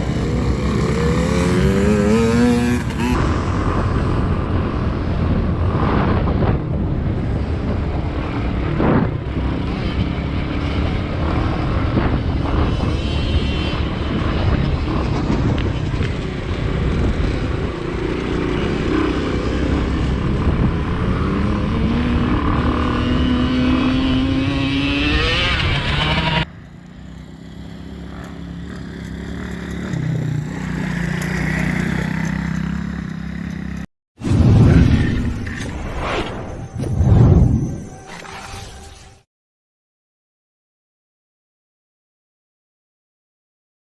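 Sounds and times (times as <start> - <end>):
motocross engine revving: 0.0 - 3.2, 20.9 - 33.9.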